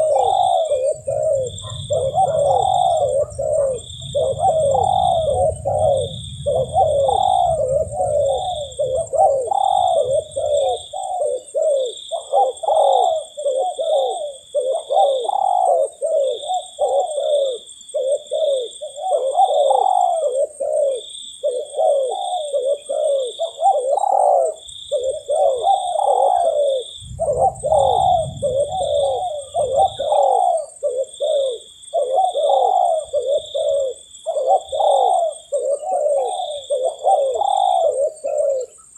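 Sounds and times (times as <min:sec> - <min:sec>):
high-pitched whine: 0:00.0 - 0:11.0, 0:27.0 - 0:30.4
doves cooing: 0:00.0 - 0:38.9
low rumble: 0:00.8 - 0:10.6, 0:27.0 - 0:30.1.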